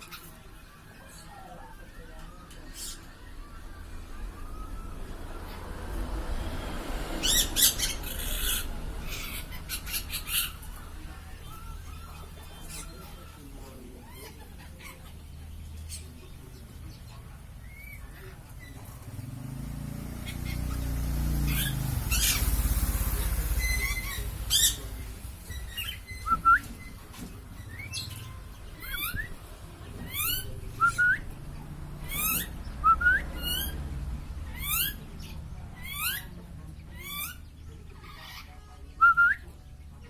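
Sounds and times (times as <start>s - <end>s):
parrot shrill squeaking calls: 7.2s - 10.7s, 23.5s - 24.9s, 27.6s - 29.4s, 32.0s - 32.6s, 34.5s - 35.0s.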